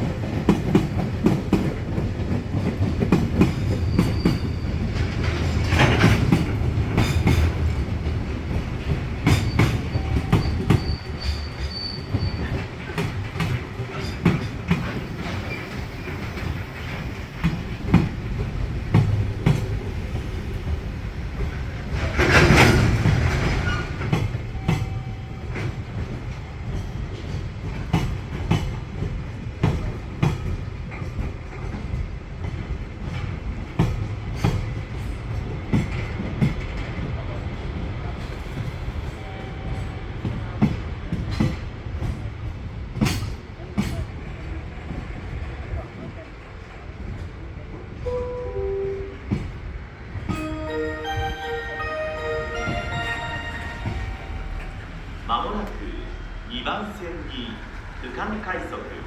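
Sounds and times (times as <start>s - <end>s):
train wheels clacking over rail joints: 0.0s - 25.0s, 39.8s - 44.3s
low train rumble: 0.0s - 59.0s.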